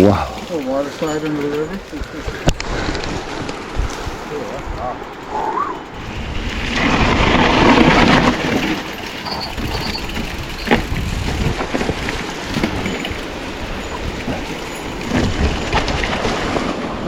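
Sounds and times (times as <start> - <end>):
bike tyre rattle: 0.0 - 17.0
wind on microphone: 1.8 - 17.0.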